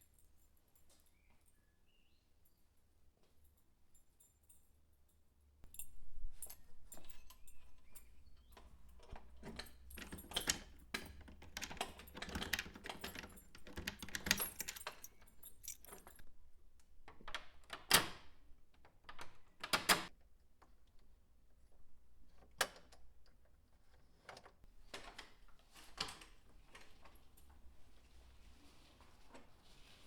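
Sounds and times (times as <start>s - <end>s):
metallic jingle: 12.8s - 16.2s.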